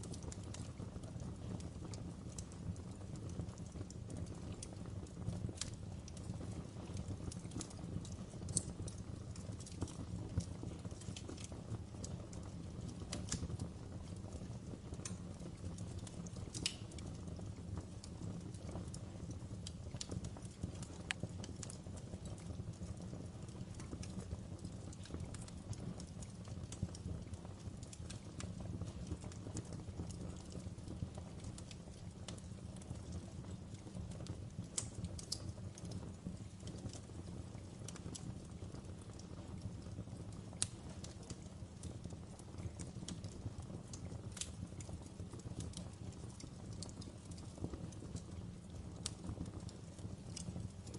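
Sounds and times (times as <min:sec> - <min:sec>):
fire crackling: 0:00.0 - 0:50.9
flames rumbling: 0:00.0 - 0:50.9
sharp pops of burning logs: 0:07.4 - 0:11.5, 0:16.0 - 0:17.2, 0:31.4 - 0:38.3, 0:40.6 - 0:50.9.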